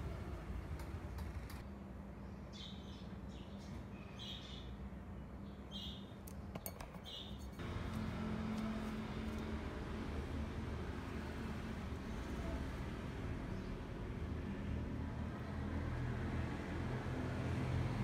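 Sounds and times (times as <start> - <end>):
small bird chirping: 2.5 - 4.8, 5.5 - 6.2, 7.0 - 7.5.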